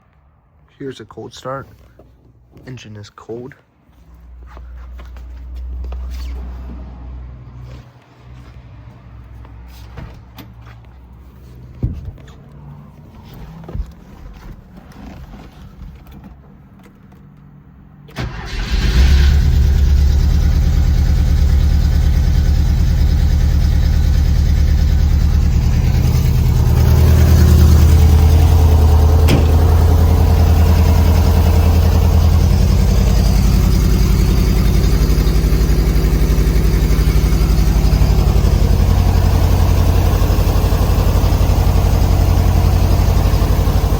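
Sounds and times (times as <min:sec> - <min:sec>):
car engine idling: 0:18.1 - 0:43.9
starter cranking: 0:21.4 - 0:35.4.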